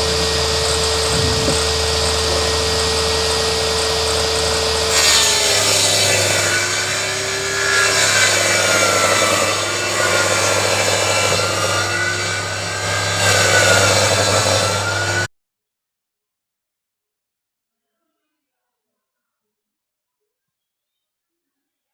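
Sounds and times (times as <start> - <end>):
table saw cutting wood: 0.0 - 15.3.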